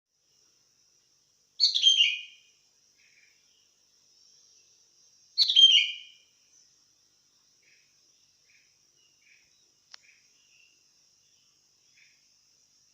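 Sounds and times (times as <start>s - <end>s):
faint high insect buzz: 0.1s - 12.9s
bulbul singing: 1.6s - 6.8s.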